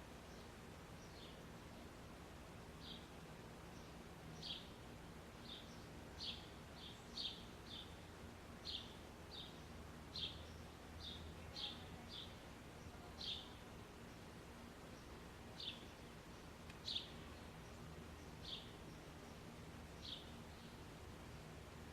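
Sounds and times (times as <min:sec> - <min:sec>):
low background hum: 0:00.0 - 0:21.9
small bird chirping: 0:15.0 - 0:20.8.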